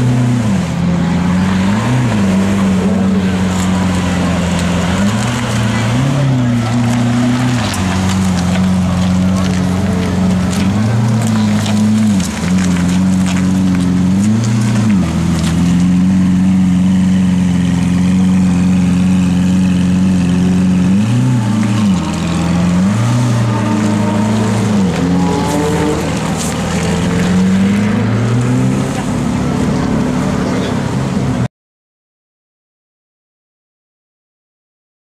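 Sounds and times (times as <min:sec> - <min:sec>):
sports car engine idling and revving: 0:00.0 - 0:31.5
people talking: 0:01.0 - 0:13.5, 0:23.6 - 0:31.5.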